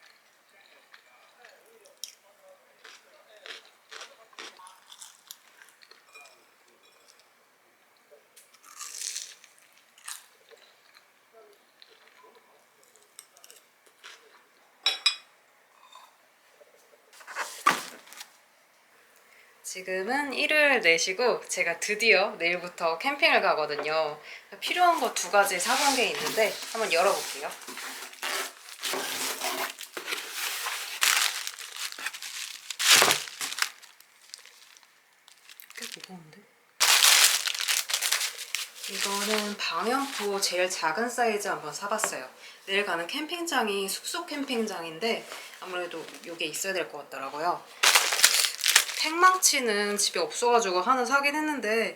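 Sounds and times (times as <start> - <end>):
crunchy biting and chewing: 2.8 - 5.8, 8.6 - 10.3, 29.6 - 36.1, 36.8 - 39.5, 47.8 - 49.1
packaging crinkling and rustling: 17.2 - 18.3, 24.7 - 36.2, 36.8 - 40.7, 45.3 - 46.5, 47.7 - 49.6.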